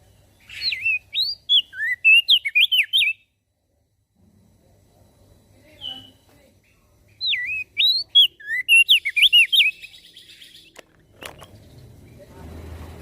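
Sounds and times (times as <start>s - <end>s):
bird singing whistled notes: 0.0s - 3.4s, 5.7s - 12.3s.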